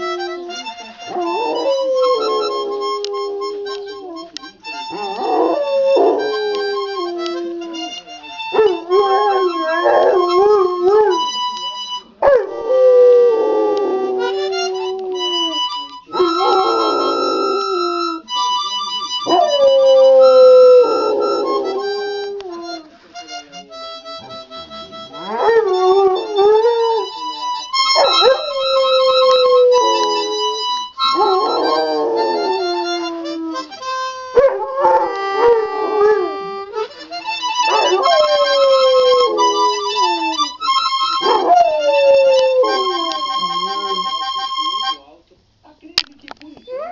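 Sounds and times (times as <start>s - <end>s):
dog howling: 0.0s - 4.3s, 4.9s - 7.8s, 8.5s - 11.3s, 12.2s - 18.2s, 19.2s - 22.8s, 25.2s - 27.1s, 27.9s - 33.8s, 34.4s - 36.5s, 37.6s - 44.1s
harmonica playing chords: 0.0s - 45.2s.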